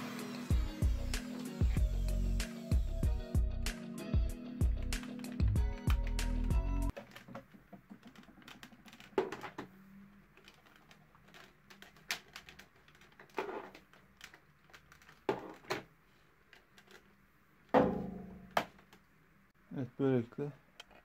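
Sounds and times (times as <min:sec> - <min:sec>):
plastic parts clicking: 0:06.9 - 0:17.2.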